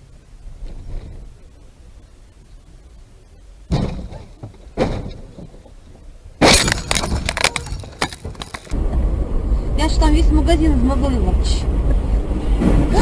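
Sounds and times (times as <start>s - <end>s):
glass smashing: 6.4s - 8.7s
glass and debris rattling: 6.4s - 8.8s
collision impacts: 6.4s - 9.2s.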